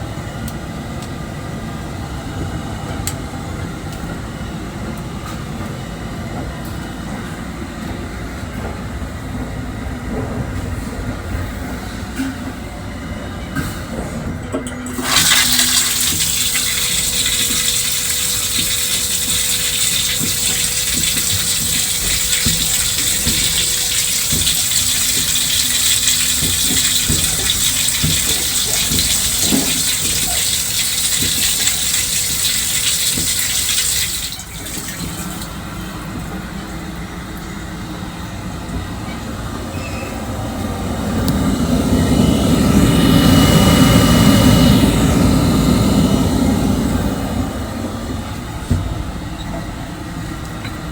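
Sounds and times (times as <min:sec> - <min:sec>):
train running noise: 0:00.0 - 0:50.9
water rushing in toilet: 0:14.9 - 0:35.8.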